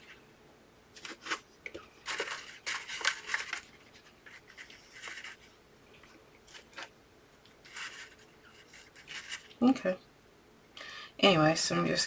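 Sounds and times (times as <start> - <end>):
frosting scraping strokes: 7.6 - 9.6.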